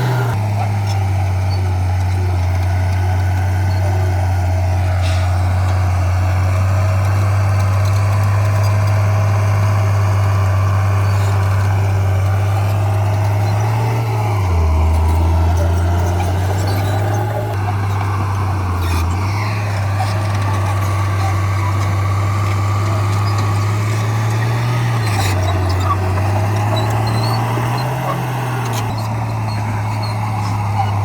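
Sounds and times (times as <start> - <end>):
diesel engine humming: 0.0 - 31.0.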